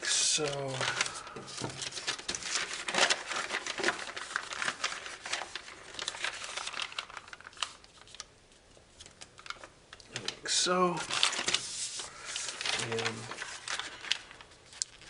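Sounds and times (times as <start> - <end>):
foil crinkling and crackling: 0.2 - 8.3, 9.0 - 15.0.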